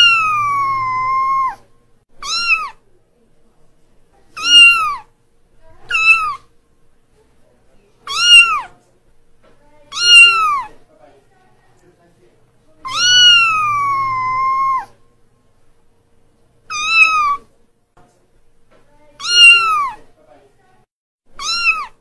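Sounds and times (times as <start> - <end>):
kitten meowing: 0.0 - 1.6, 2.2 - 2.8, 4.4 - 5.1, 5.9 - 6.5, 8.1 - 8.7, 9.9 - 10.8, 12.8 - 14.9, 16.7 - 17.5, 19.2 - 20.0, 21.4 - 22.0.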